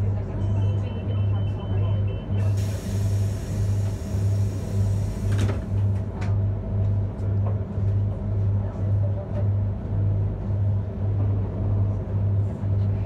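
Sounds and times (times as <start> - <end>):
train humming: 0.0 - 13.0
air hissing: 2.5 - 5.4.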